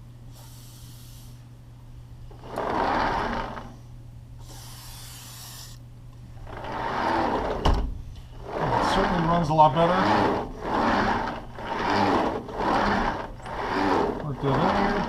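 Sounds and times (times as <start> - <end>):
sliding door rolling on track: 2.3 - 3.9, 6.4 - 15.0
hissing bursts: 4.4 - 5.8.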